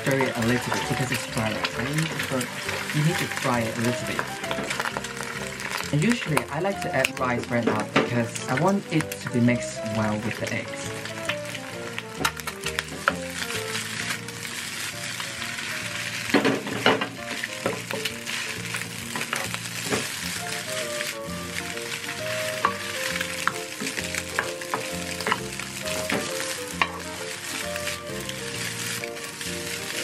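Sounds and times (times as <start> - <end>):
rice and egg sizzling in wok: 0.0 - 30.0
soft background music: 0.0 - 30.0
spatula scraping and knocking pan: 10.1 - 30.0.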